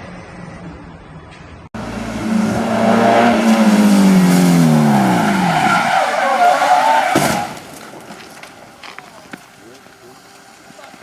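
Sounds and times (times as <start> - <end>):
car engine revs dropping: 1.8 - 7.8
tyres skidding and squealing: 1.8 - 11.0.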